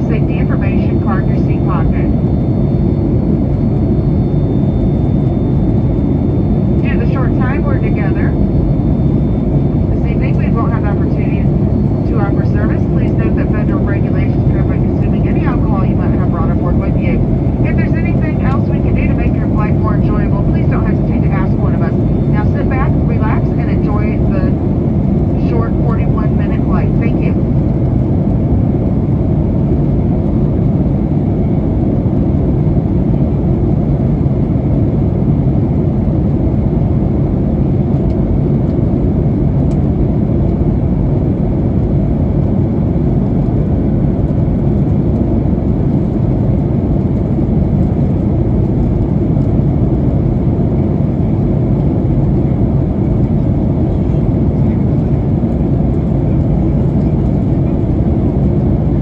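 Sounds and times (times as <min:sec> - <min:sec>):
faint steady hum: 0:00.0 - 0:30.7
jet cabin engine drone: 0:00.0 - 0:59.0.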